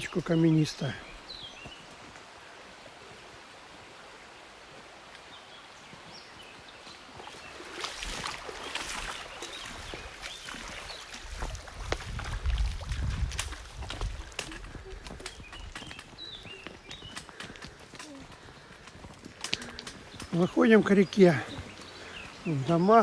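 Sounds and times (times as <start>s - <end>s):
footsteps on steps: 7.6s - 22.9s
wind rumble on microphone: 9.6s - 17.1s.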